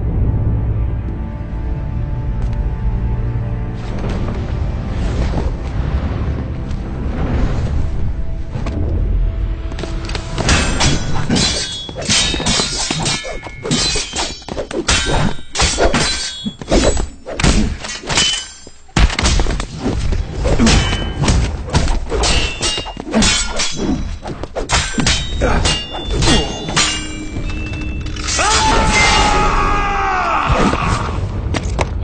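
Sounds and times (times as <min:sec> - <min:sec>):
metallic clangs: 0:22.2 - 0:29.4.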